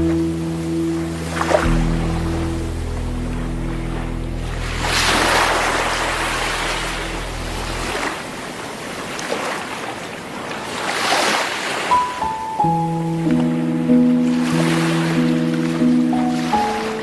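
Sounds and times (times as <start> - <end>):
low music drone: 0.0 - 8.6
sea waves breaking on shore: 3.3 - 17.0.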